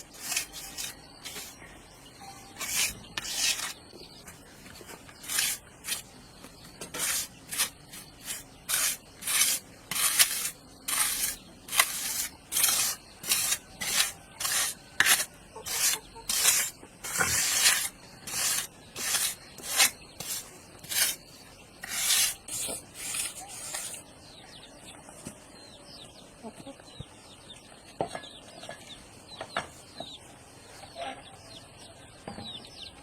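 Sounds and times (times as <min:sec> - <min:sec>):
rhythmic scraping strokes by hand: 0:00.0 - 0:01.7, 0:02.4 - 0:03.8, 0:04.6 - 0:06.1, 0:06.8 - 0:24.0.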